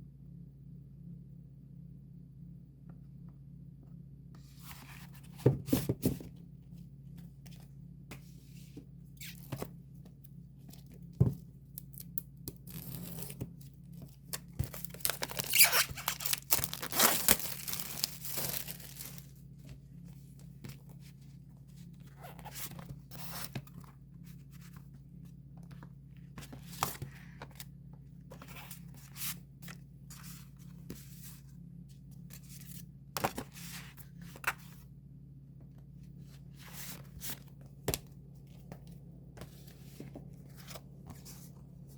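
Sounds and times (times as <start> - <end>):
steady low hum: 0.0 - 41.9
paper ripping: 14.7 - 19.2
packaging being torn open: 14.8 - 19.2.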